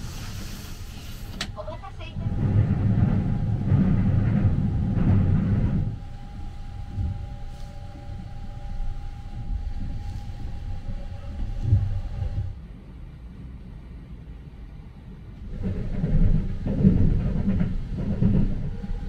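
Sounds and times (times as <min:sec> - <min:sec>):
train rumbling over bridge: 0:00.0 - 0:19.0
train running rumble: 0:00.0 - 0:19.0
faint steady whine: 0:01.2 - 0:12.9.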